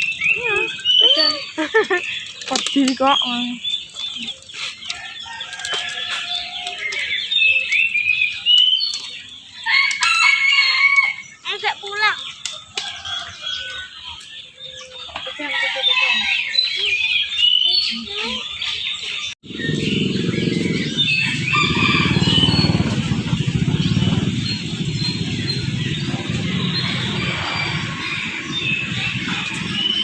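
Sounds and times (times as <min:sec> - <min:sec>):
songbirds chirping: 0:00.0 - 0:30.0
engine noise: 0:19.4 - 0:30.0.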